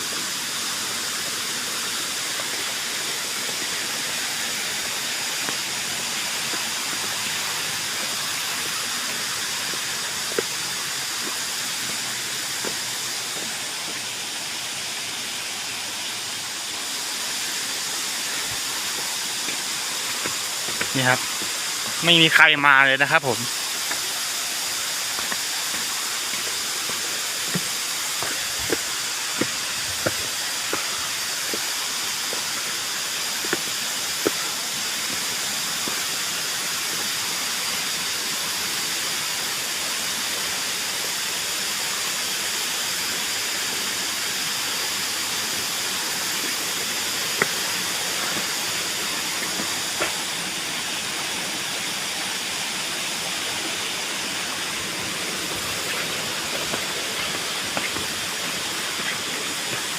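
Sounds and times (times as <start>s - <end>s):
cicadas buzzing: 0.0s - 59.9s
waterfall rushing: 0.0s - 59.9s.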